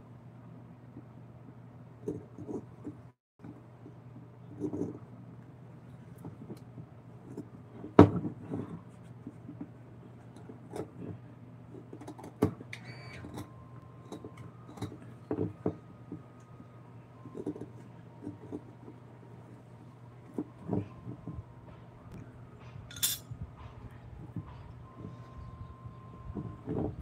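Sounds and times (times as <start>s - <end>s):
steady low hum: 0.0s - 27.0s
brief squeak: 12.8s - 13.6s.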